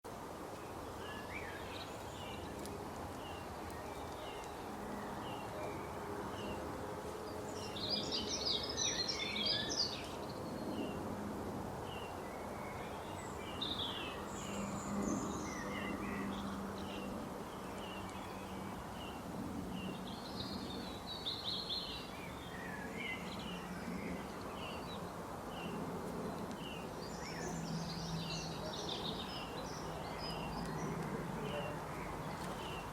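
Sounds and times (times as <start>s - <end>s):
birds chirping and singing: 7.3s - 11.0s, 26.6s - 32.9s.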